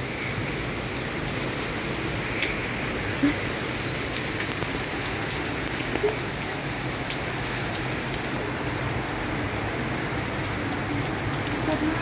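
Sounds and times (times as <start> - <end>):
steady rain hiss: 0.0 - 12.0
raindrop taps: 0.9 - 6.2.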